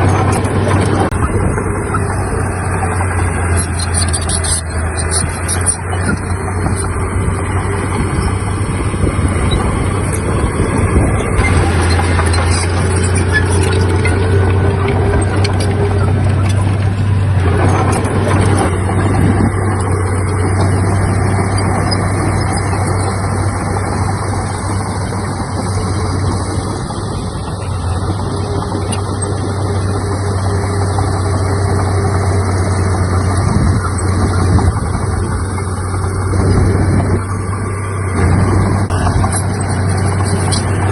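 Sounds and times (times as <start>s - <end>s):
heavy diesel machinery droning: 0.0s - 40.9s.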